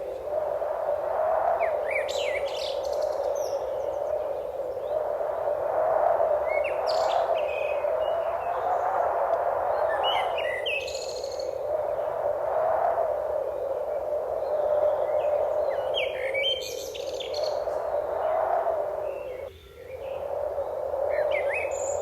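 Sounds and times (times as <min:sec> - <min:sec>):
songbirds chirping and whistling: 0:01.6 - 0:05.0, 0:06.4 - 0:09.0, 0:09.7 - 0:12.2, 0:13.6 - 0:18.1, 0:19.0 - 0:22.0.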